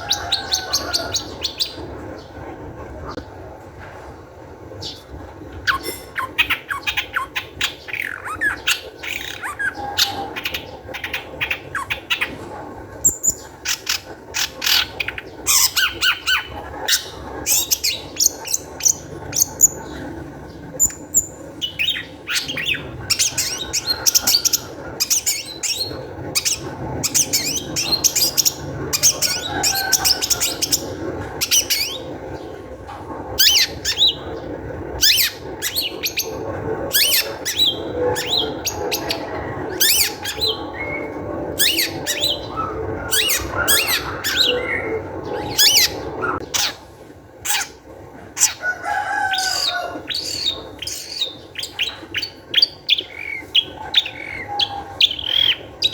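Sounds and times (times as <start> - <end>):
bird harsh scratchy song: 13.0 - 32.6, 33.4 - 46.9, 48.4 - 55.9.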